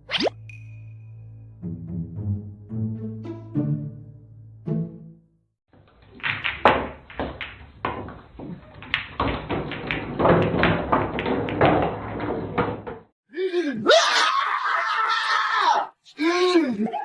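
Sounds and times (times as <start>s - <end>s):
door knocking and rattling: 6.1s - 13.1s.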